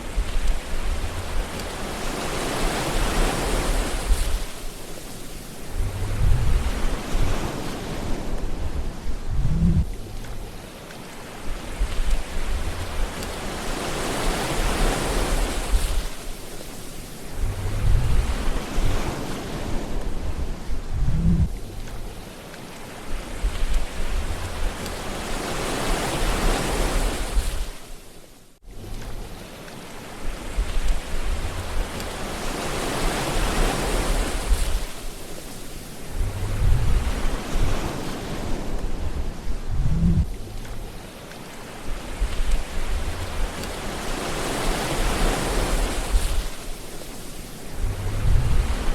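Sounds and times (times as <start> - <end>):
low rumbles: 0.0 - 1.7, 5.7 - 7.3, 8.3 - 10.6, 17.3 - 19.0, 20.0 - 22.3, 28.6 - 29.5, 30.2 - 32.4, 36.1 - 37.8, 38.6 - 41.0, 41.9 - 43.8, 47.7 - 48.9
ocean waves breaking: 0.0 - 48.9.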